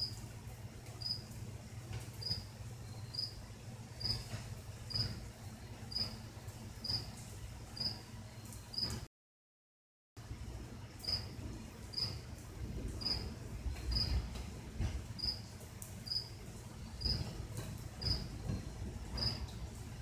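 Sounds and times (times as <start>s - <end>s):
cricket chirping: 1.0s - 1.2s, 2.2s - 3.4s, 4.0s - 4.2s, 11.9s - 12.2s, 13.9s - 14.2s, 15.2s - 15.4s, 16.1s - 16.3s, 18.0s - 18.3s, 19.2s - 19.4s.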